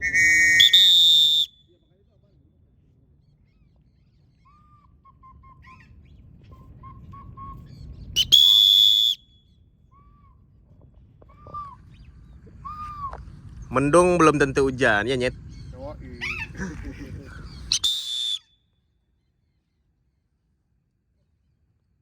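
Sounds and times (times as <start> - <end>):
whistle blown: 0.0 - 1.7, 6.8 - 9.4, 17.7 - 18.6
short chirping calls: 8.1 - 9.1, 17.4 - 18.5.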